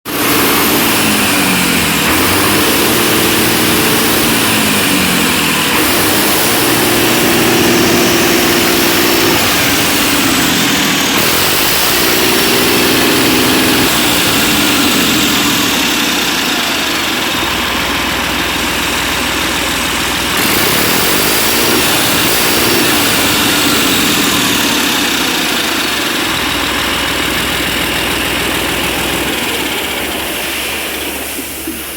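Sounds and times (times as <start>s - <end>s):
diesel engine revving: 0.0s - 31.9s.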